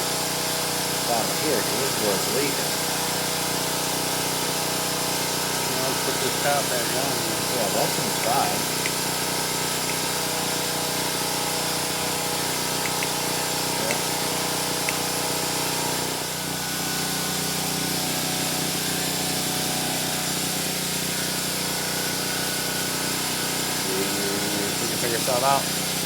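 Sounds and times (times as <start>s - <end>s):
machine hum: 4.4s - 18.5s
faint clicks: 12.8s - 13.2s.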